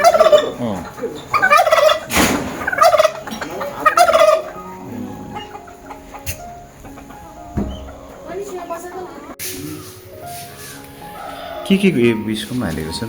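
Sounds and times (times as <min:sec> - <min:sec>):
turkey gobbling: 0:00.0 - 0:12.6.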